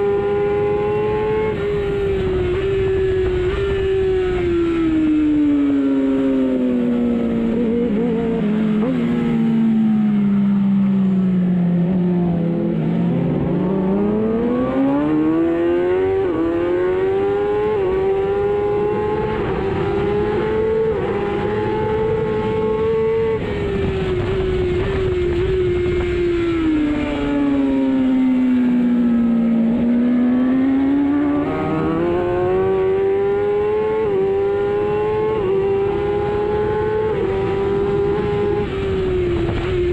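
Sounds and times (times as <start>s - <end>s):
superbike engine revving: 11.7s - 39.9s.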